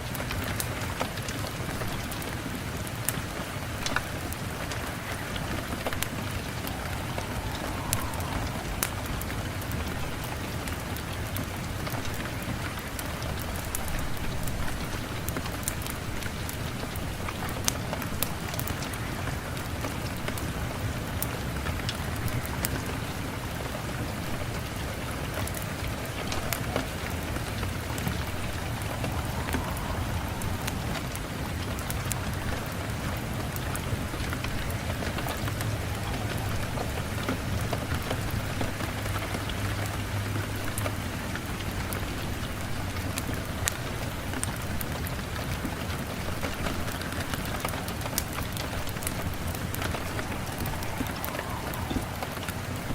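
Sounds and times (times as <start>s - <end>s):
rain hissing: 0.0s - 52.9s
low rumble: 3.7s - 12.0s, 25.8s - 34.1s, 48.6s - 52.9s.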